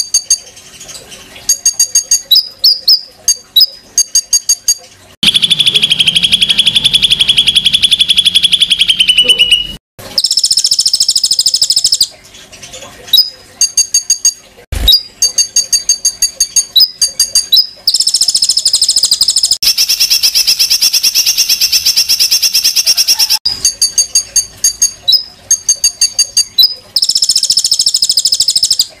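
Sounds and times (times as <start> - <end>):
songbird singing harsh notes: 5.2 - 10.4.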